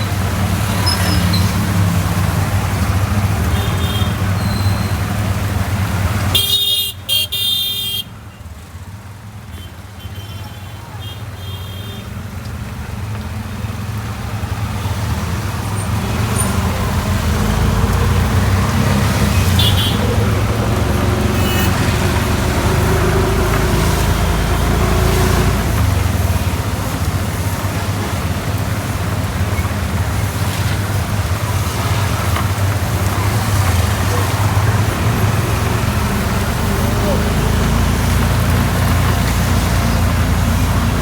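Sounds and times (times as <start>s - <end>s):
vehicle engine running: 30.8s - 41.0s.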